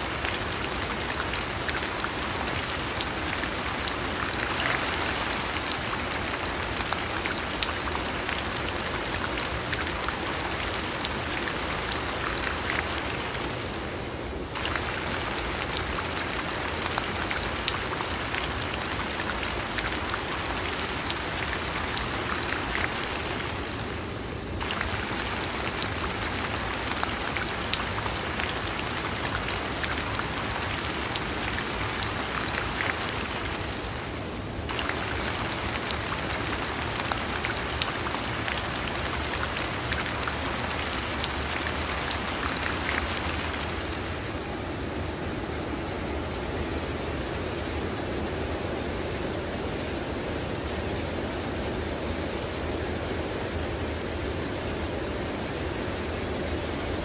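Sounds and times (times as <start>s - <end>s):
raindrops ticking on hard surfaces: 0.0s - 13.9s, 14.5s - 44.1s
steady rain falling: 0.0s - 57.0s.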